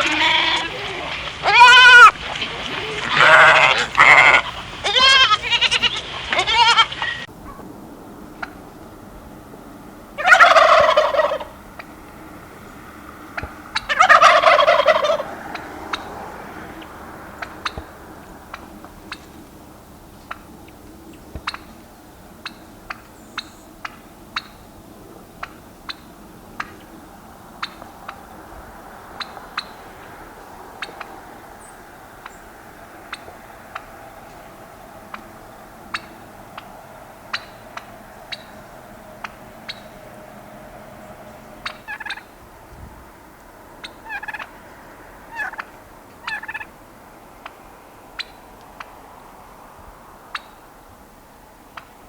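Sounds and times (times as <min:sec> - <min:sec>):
turkey gobbling: 0:00.0 - 0:07.7, 0:08.3 - 0:08.8, 0:10.2 - 0:12.1, 0:13.2 - 0:19.4, 0:20.2 - 0:24.6, 0:25.3 - 0:27.0, 0:27.6 - 0:29.9, 0:30.8 - 0:32.5, 0:33.1 - 0:40.0, 0:41.6 - 0:42.4, 0:43.8 - 0:46.7, 0:48.2 - 0:48.9, 0:50.3 - 0:50.6.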